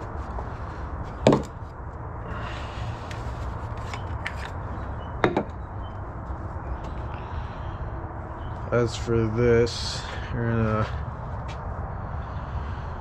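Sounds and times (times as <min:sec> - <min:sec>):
sharp knocks: 0:05.2 - 0:05.6.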